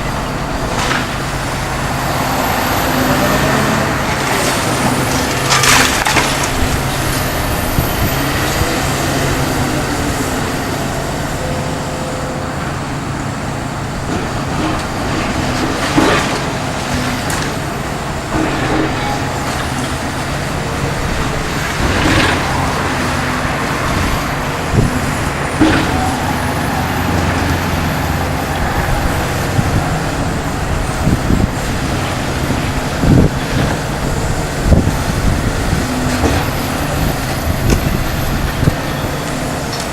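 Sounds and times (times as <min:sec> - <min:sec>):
excavator diesel engine running: 0:00.0 - 0:39.9
hydraulics working: 0:00.0 - 0:39.9
debris knocks and crashes: 0:04.0 - 0:07.4, 0:14.1 - 0:29.8.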